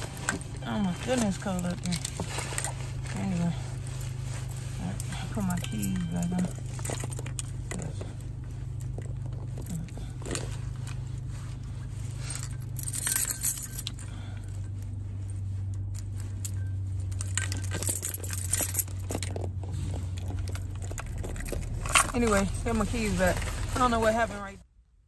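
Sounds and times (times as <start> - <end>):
keys jingling: 0.0 - 24.3
car low hum: 0.0 - 25.0.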